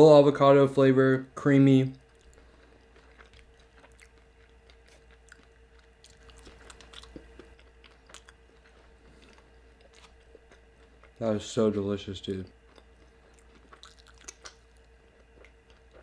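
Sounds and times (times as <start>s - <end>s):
faint steady hum: 0.0s - 16.0s
chewing food: 1.9s - 11.2s, 12.6s - 16.0s.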